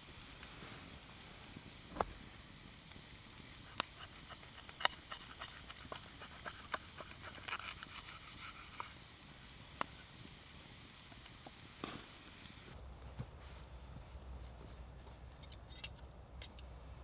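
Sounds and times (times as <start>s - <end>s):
campfire crackling and popping: 0.0s - 12.8s
faint hiss: 0.0s - 14.2s.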